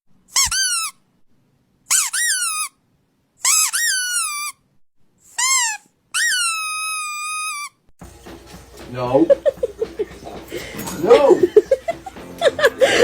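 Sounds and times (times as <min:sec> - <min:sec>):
high-pitched squeaks: 0:03.5 - 0:04.6, 0:05.3 - 0:07.8.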